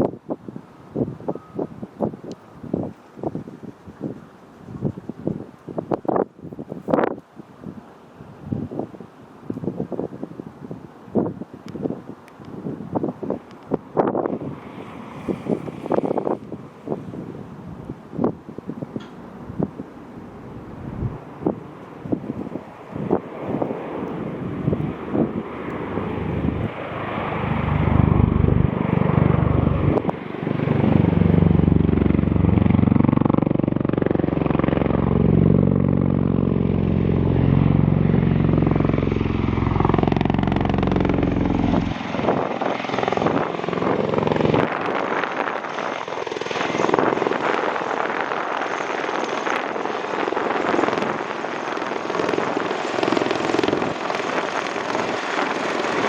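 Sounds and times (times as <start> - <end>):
aircraft rotor throb: 13.0 - 56.0.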